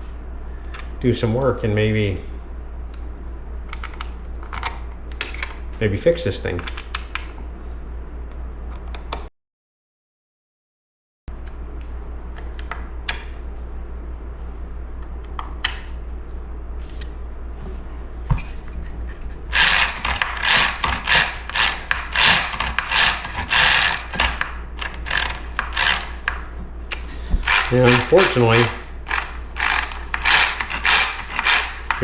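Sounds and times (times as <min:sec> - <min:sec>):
steady low hum: 0:00.0 - 0:09.3, 0:11.3 - 0:32.0
chainsaw recoil starter ratcheting: 0:19.5 - 0:26.4, 0:27.4 - 0:32.0.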